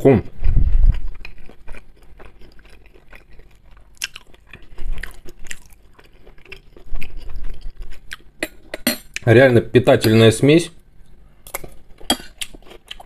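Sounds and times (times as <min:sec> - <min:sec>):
person chewing food: 0:00.3 - 0:09.2, 0:11.4 - 0:13.0.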